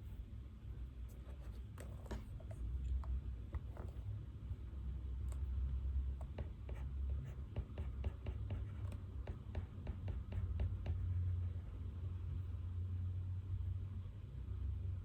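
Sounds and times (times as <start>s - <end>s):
low steady hum: 0.0s - 15.0s
pen scratching on paper: 6.2s - 11.1s.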